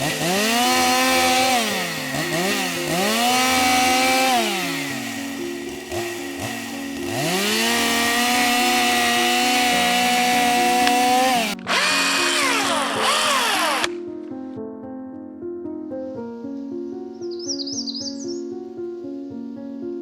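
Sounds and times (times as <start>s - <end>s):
electric chainsaw revving: 0.0s - 14.0s.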